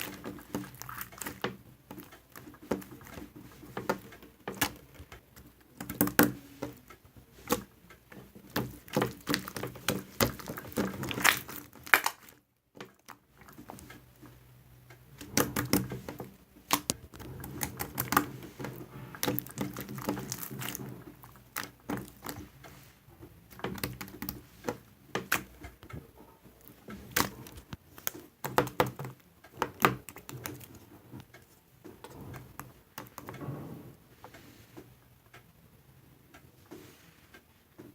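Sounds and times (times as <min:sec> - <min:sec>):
irregular clicks and taps: 0:00.0 - 0:35.6.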